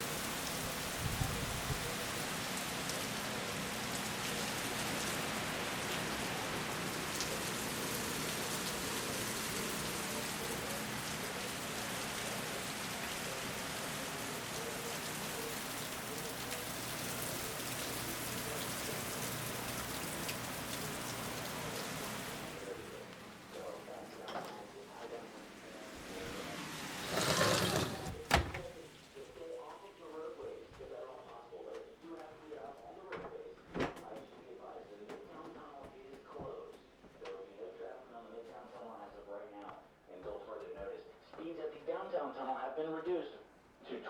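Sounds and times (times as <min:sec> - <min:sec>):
heavy rain hiss: 0:00.0 - 0:24.0, 0:25.4 - 0:28.8.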